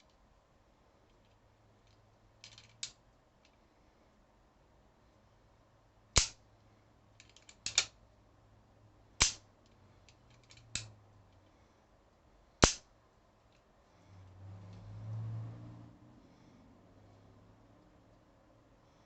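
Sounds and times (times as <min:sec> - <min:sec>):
revolver hammer snapping: 0:06.2 - 0:06.4, 0:09.2 - 0:09.4, 0:12.6 - 0:12.9.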